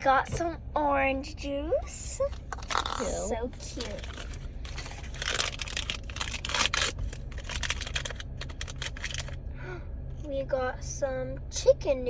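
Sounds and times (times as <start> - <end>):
plastic wrapping crinkling and tearing: 2.5 - 9.4.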